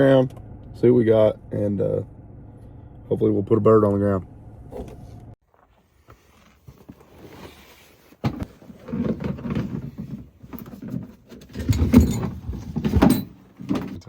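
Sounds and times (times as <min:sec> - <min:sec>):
knocks and thumps of gear: 0:08.2 - 0:14.0.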